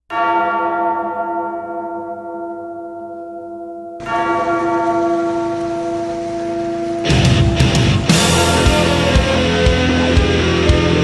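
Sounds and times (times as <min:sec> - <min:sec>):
deep bell tolling: 0:00.1 - 0:11.0
rising hiss: 0:07.1 - 0:11.0.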